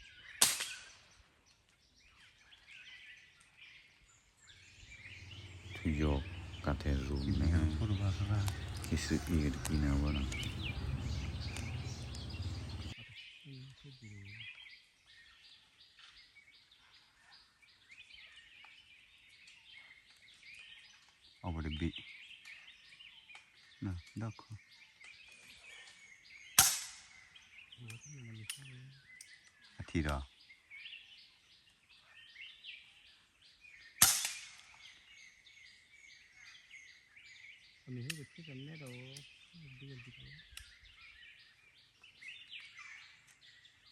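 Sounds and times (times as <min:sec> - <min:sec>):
birds chirping: 0:00.0 - 0:43.9
gunshot crack: 0:00.4 - 0:01.0, 0:26.6 - 0:27.2, 0:34.0 - 0:34.7
loud low rumble: 0:05.2 - 0:13.0.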